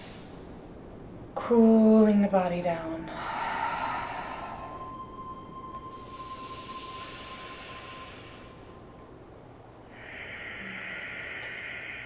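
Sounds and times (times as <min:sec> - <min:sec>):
breathy exhale: 0:00.0 - 0:00.6, 0:03.1 - 0:09.1, 0:09.9 - 0:12.0
hissing inhale through teeth: 0:06.1 - 0:08.9.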